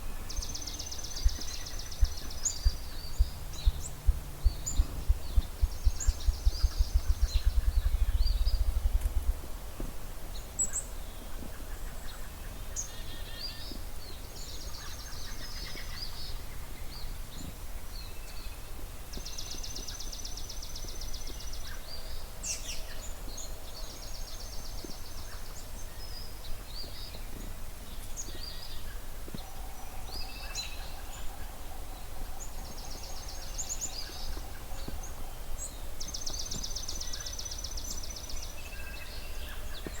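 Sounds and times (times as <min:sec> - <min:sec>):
songbirds chirping and trilling: 0:00.0 - 0:40.0
grouse drumming thumps: 0:01.2 - 0:09.9.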